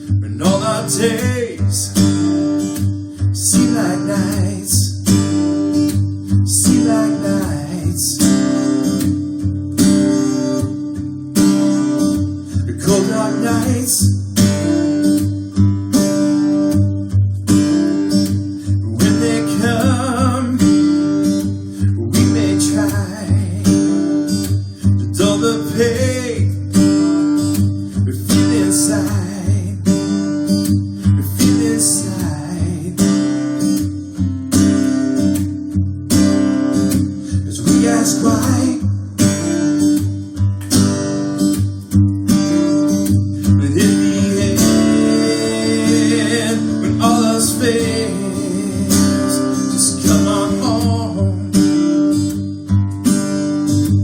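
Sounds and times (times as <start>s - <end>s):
person singing: 0.0s - 2.1s, 3.3s - 5.2s, 6.5s - 8.6s, 12.5s - 14.2s, 18.8s - 20.7s, 21.8s - 24.0s, 25.1s - 26.6s, 28.0s - 30.1s, 31.2s - 33.2s, 37.2s - 38.9s, 43.4s - 51.7s
acoustic guitar strumming: 0.0s - 54.0s.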